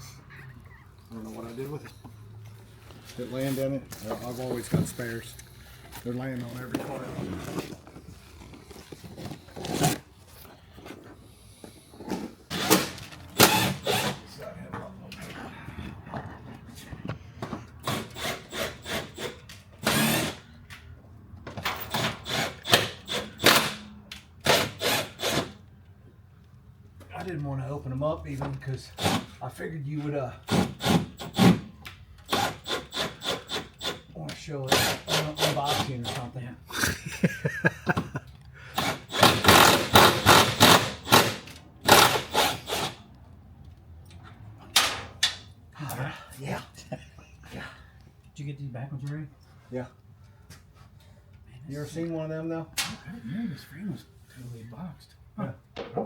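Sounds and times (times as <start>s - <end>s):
cardboard and bubble wrap rustling: 3.1s - 11.0s.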